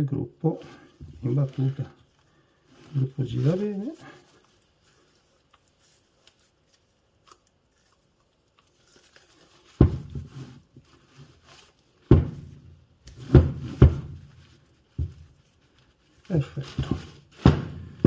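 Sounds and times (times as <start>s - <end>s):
sharp knocks on workbench: 12.1s - 12.5s, 17.4s - 18.0s.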